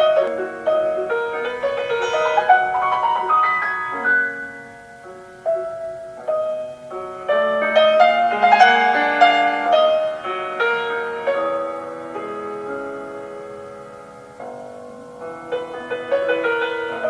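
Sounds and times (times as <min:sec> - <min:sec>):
classical solo piano music: 0:00.0 - 0:17.0.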